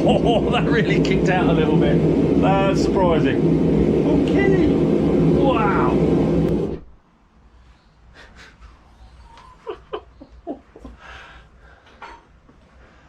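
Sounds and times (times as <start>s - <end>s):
gas forge burner roaring: 0.0s - 7.0s
person breathing: 10.9s - 12.0s, 12.7s - 13.0s.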